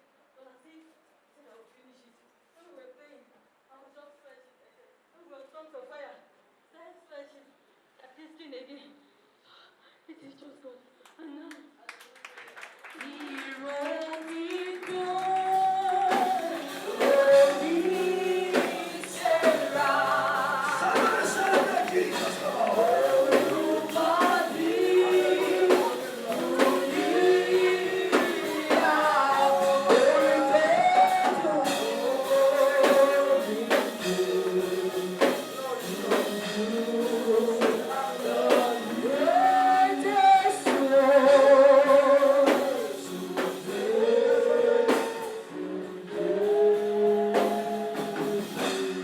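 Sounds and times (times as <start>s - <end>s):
congregation singing: 14.3s - 49.0s
steady percussion beat: 15.5s - 45.6s.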